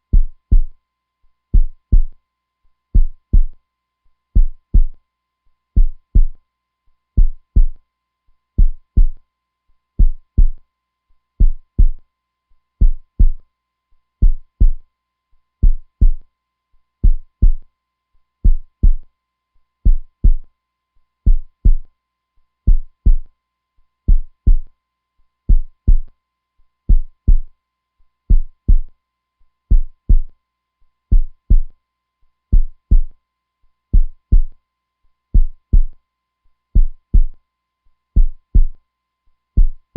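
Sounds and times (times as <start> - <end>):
heartbeat thumping: 0.1 - 0.7, 1.6 - 2.1, 3.0 - 3.6, 4.4 - 5.0, 5.8 - 6.4, 7.2 - 7.8, 8.6 - 9.2, 10.0 - 10.6, 11.4 - 12.0, 12.8 - 13.4, 14.2 - 14.8, 15.6 - 16.2, 17.0 - 17.6, 18.4 - 19.0, 19.9 - 20.4, 21.3 - 21.8, 22.7 - 23.2, 24.1 - 24.7, 25.5 - 26.1, 26.9 - 27.5, 28.3 - 28.9, 29.7 - 30.3, 31.1 - 31.7, 32.5 - 33.1, 34.0 - 34.5, 35.4 - 35.9, 36.8 - 37.4, 38.2 - 38.8, 39.6 - 39.9.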